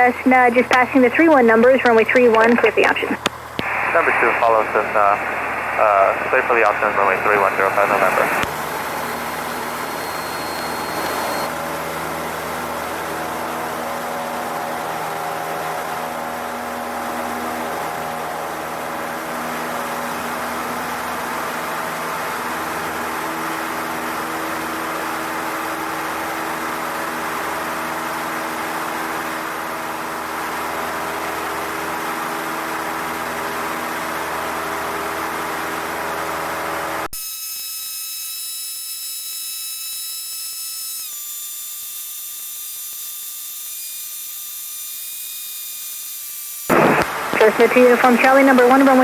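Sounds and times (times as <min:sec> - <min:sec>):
thin high whines: 0:00.0 - 0:11.6
light aircraft engine drone: 0:00.0 - 0:37.1, 0:46.7 - 0:49.0
electronic hiss: 0:09.5 - 0:11.5, 0:46.6 - 0:49.0.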